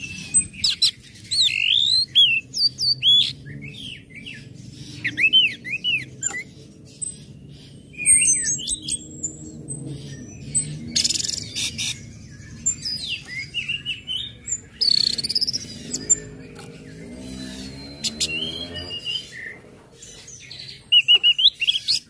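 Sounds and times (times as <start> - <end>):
thrush singing: 8.1 - 20.9.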